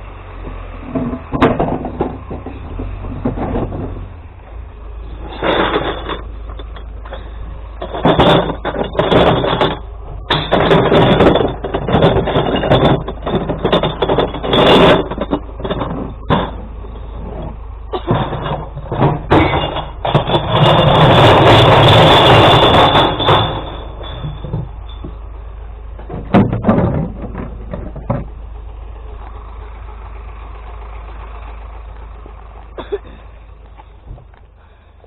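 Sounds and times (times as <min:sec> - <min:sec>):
truck engine rumbling: 0:00.0 - 0:35.0
glass clattering crashes: 0:05.1 - 0:25.3.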